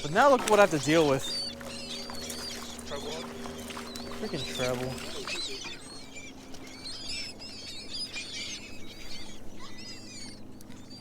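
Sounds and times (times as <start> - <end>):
faint low hum: 0.0 - 11.0
seabirds chirping: 0.0 - 11.0.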